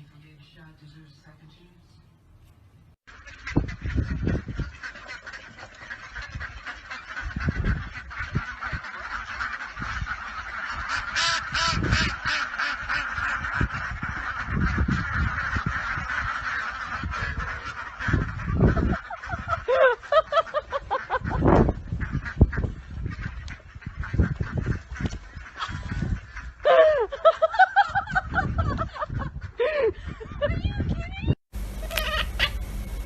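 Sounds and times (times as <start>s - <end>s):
many birds calling: 3.1s - 27.2s, 31.6s - 33.0s.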